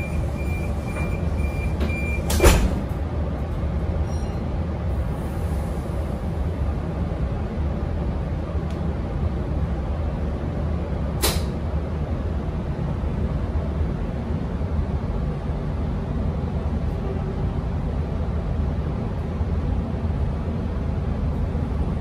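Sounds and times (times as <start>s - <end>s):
train low rumble: 0.0s - 22.0s
sharp click: 11.2s - 11.6s.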